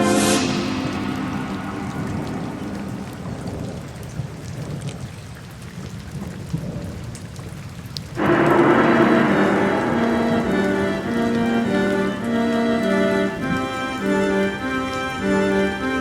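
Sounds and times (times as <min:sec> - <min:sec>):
background music: 0:00.0 - 0:02.7, 0:08.2 - 0:16.0
low thunder rumble: 0:00.0 - 0:05.2, 0:08.1 - 0:13.8
rain falling: 0:00.0 - 0:16.0
raindrop ticks: 0:02.1 - 0:16.0.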